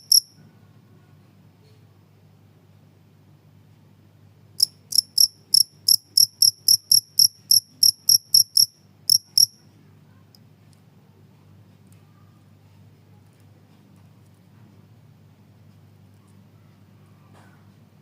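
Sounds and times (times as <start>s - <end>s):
cricket chirping: 0.0s - 0.4s, 4.6s - 9.6s
faint low hum: 0.0s - 18.0s.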